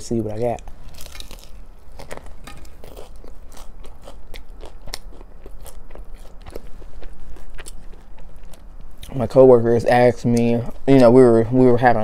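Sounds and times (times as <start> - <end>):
crisp crust crackling: 0.0 - 9.5
crunchy bites of fried chicken: 0.6 - 9.2.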